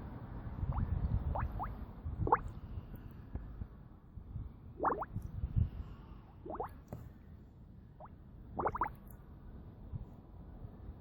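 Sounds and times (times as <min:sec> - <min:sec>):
air bubbles plopping in water: 0:00.7 - 0:02.5, 0:04.8 - 0:05.1, 0:06.5 - 0:06.7, 0:08.6 - 0:09.0.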